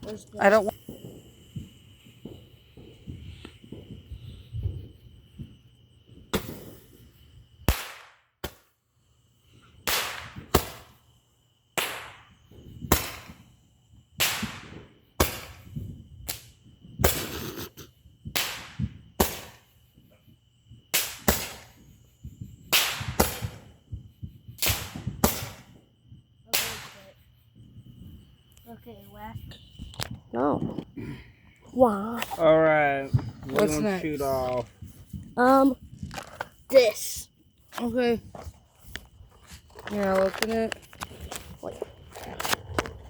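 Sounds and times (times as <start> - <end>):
firework pops: 0.0 - 5.6, 6.2 - 7.0, 7.6 - 8.7, 9.8 - 11.0, 11.8 - 13.4, 14.2 - 19.8, 20.8 - 25.8, 26.5 - 27.2, 33.0 - 43.0
crickets chirping: 0.0 - 43.0.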